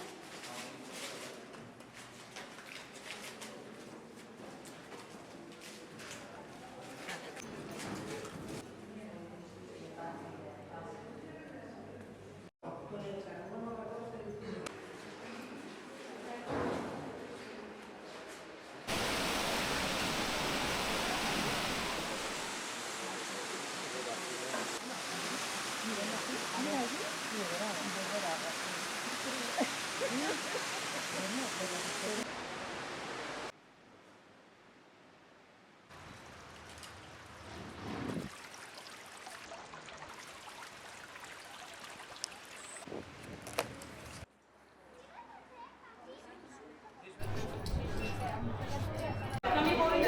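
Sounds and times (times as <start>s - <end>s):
waterfall rushing: 18.9s - 33.5s.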